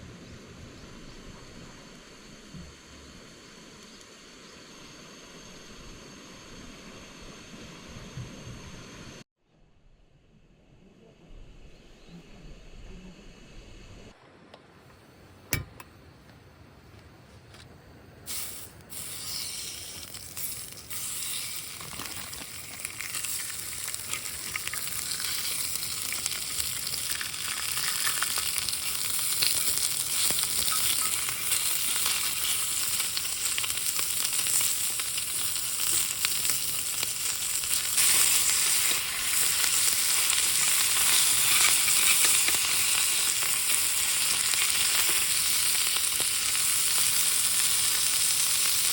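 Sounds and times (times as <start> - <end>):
food sizzling in a pan: 18.3 - 48.9.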